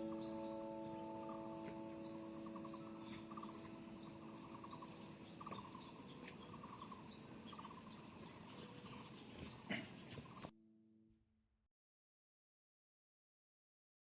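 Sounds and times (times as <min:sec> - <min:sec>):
held music note: 0:00.0 - 0:05.7
pulsed animal trills: 0:00.0 - 0:07.9.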